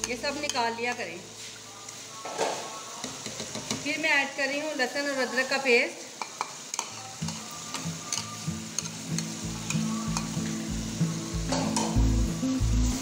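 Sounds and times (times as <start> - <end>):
chicken and potatoes sizzling in pot: 0.0 - 13.0
background music with bass line: 9.4 - 13.0.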